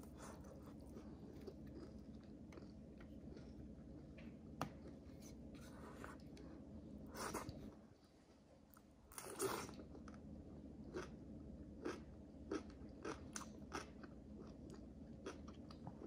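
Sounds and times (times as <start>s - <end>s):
person chewing food: 0.0s - 5.1s, 10.9s - 11.2s, 11.8s - 16.0s
faint steady hum: 0.0s - 16.0s.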